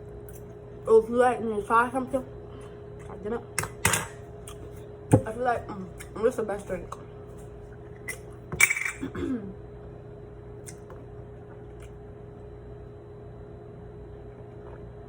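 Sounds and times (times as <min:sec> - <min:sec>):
steady low hum: 0:00.0 - 0:15.0
tableware clinking: 0:03.6 - 0:04.2, 0:08.5 - 0:09.1.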